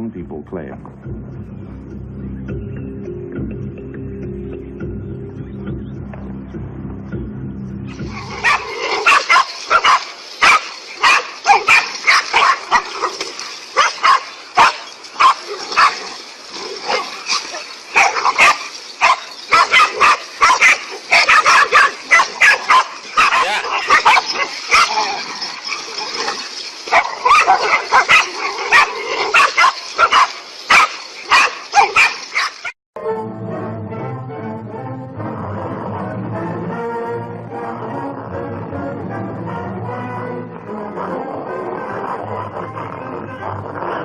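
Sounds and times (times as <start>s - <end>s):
animals barking and yelping: 7.9s - 32.8s.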